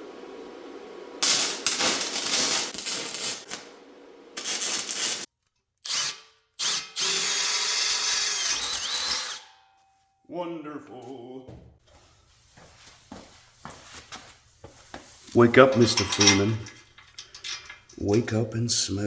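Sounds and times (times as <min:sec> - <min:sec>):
welding arc bursts: 0:01.2 - 0:03.8, 0:04.4 - 0:05.3.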